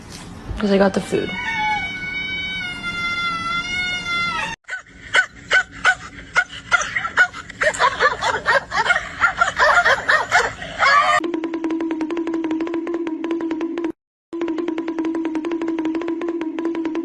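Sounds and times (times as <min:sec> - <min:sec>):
cat meowing: 0:01.1 - 0:04.6
dog yipping and barking: 0:01.4 - 0:04.0.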